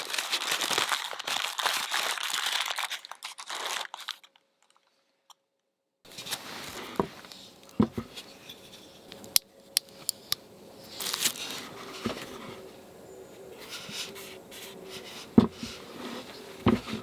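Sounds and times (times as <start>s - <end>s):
brief rustle: 6.1s - 12.7s.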